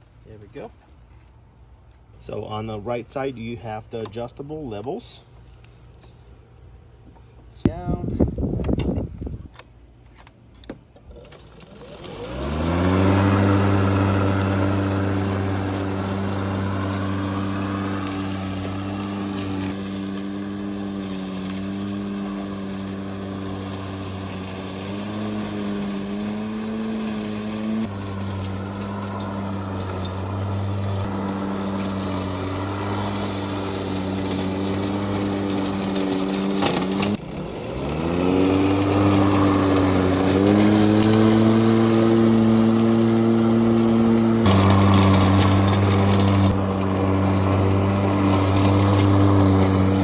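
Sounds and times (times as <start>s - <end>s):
electric lawn mower running: 11.2s - 50.0s.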